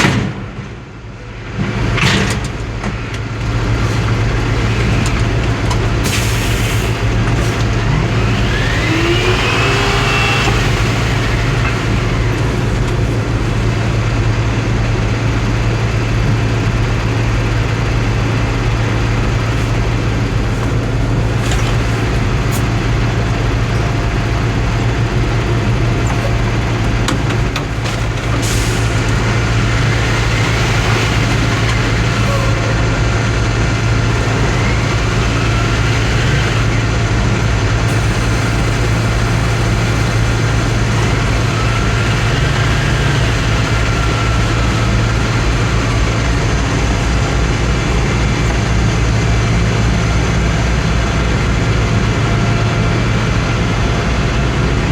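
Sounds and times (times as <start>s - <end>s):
truck engine running: 0.0s - 54.9s
short rising whine: 6.9s - 13.8s.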